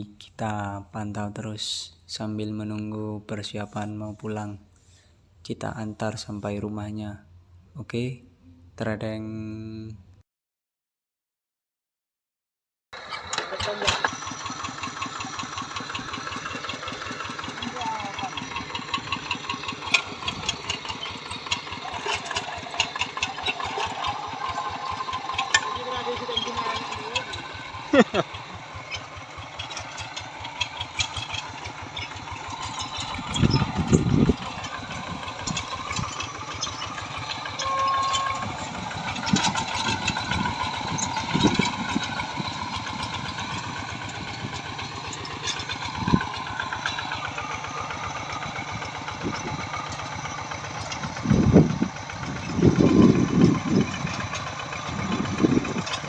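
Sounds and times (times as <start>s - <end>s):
tractor engines running: 13.0s - 56.0s.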